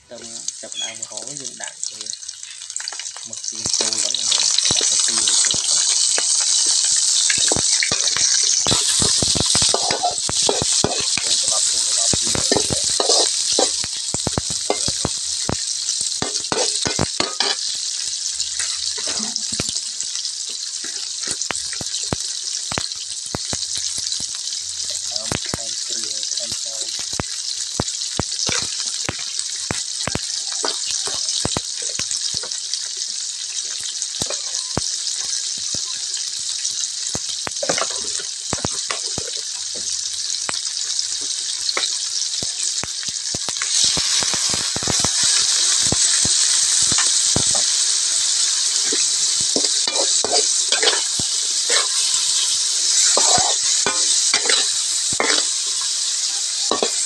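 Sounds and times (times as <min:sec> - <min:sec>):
shrimp sizzling in a wok: 0:00.0 - 0:57.0
metal spatula scraping a pan: 0:03.8 - 0:15.6, 0:16.2 - 0:17.8, 0:18.5 - 0:19.8, 0:34.2 - 0:35.4, 0:48.8 - 0:55.9, 0:56.7 - 0:57.0.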